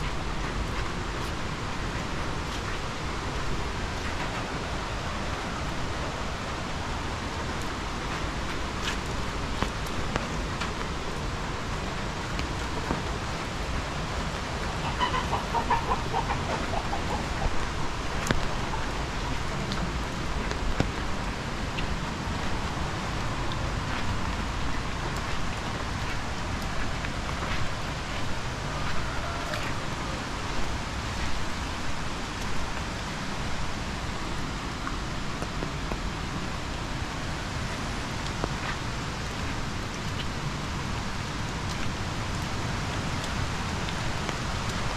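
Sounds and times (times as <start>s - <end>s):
steady rain: 0.0s - 44.9s
chicken clucking: 14.8s - 17.6s.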